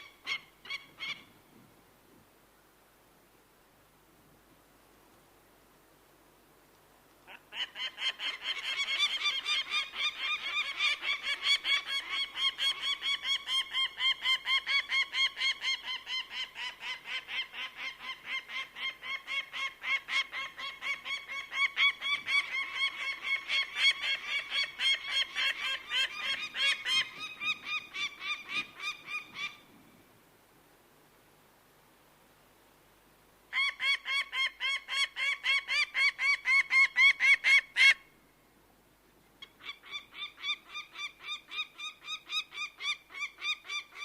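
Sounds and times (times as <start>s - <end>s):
bird of prey calling: 0.0s - 1.3s, 7.3s - 29.7s, 33.5s - 38.1s, 39.4s - 44.0s.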